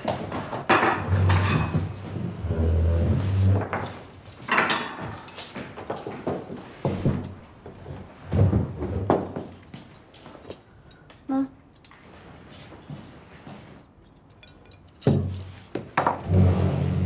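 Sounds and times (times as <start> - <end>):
plates and cutlery clinking: 0.7 - 2.0, 3.3 - 7.4.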